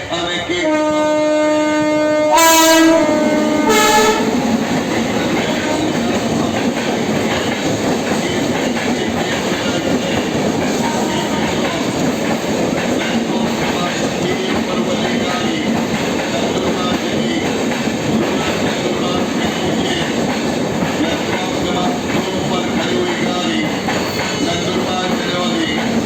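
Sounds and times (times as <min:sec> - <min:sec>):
train wheels rumbling on rails: 0:00.0 - 0:26.0
train horn blasts: 0:00.6 - 0:06.2.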